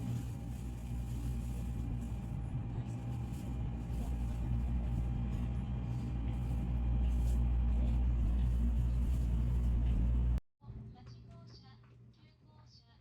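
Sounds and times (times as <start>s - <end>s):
faint constant whine: 0.0s - 10.4s
vehicle engine drone: 0.0s - 10.4s.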